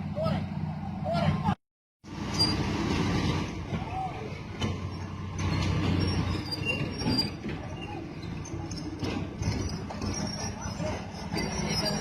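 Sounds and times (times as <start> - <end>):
high metallic squeaks: 2.2 - 2.7, 4.8 - 12.0.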